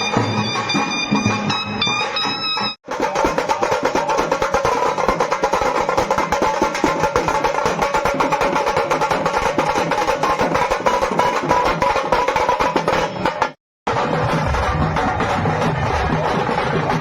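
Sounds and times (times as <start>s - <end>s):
fast dense drumming: 2.8s - 17.0s.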